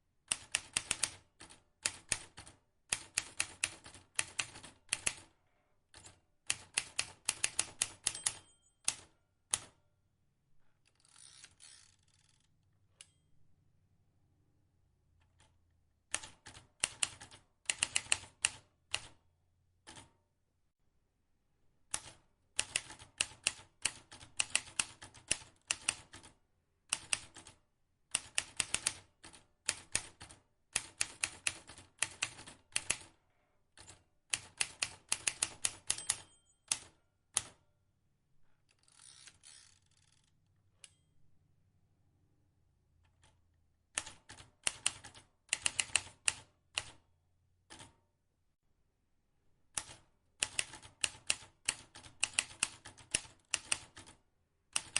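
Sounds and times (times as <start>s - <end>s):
typewriter keys clicking: 21.9s - 26.2s, 29.7s - 33.1s, 44.0s - 47.0s, 49.8s - 54.2s.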